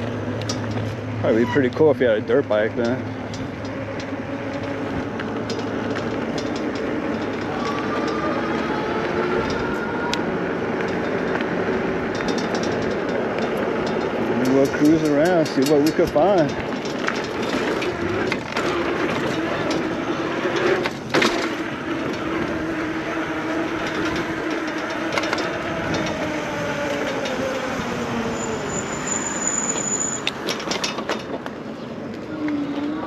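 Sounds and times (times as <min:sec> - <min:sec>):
bike knocks and rattles: 0:00.0 - 0:08.2, 0:10.7 - 0:28.1, 0:30.3 - 0:31.8
tyres on dirt trail: 0:00.0 - 0:33.0
wind noise: 0:04.5 - 0:28.8.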